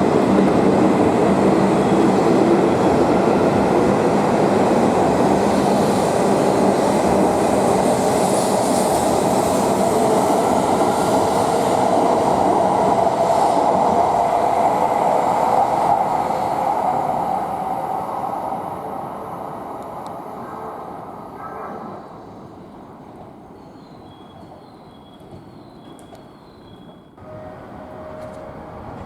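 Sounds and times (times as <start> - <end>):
train rumbling past: 0.0 - 23.4, 26.7 - 29.0.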